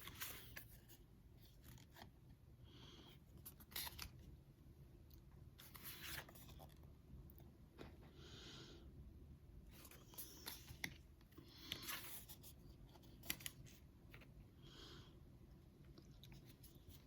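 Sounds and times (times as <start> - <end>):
cards sliding swishes: 5.6 - 6.7.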